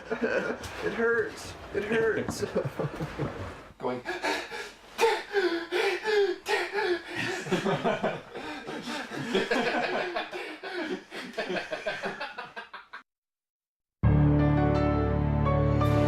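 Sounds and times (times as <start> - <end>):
people laughing: 0.0 - 0.8, 1.8 - 4.4, 7.1 - 13.0.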